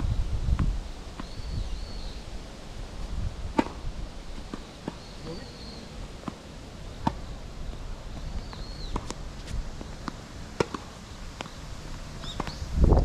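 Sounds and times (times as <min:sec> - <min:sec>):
low rumbling wind noise: 0:00.0 - 0:04.5, 0:05.9 - 0:13.0
tennis balls struck by rackets: 0:03.5 - 0:03.8, 0:04.4 - 0:07.3, 0:08.1 - 0:11.6, 0:12.2 - 0:12.6
balls bouncing on hard court: 0:09.8 - 0:11.6.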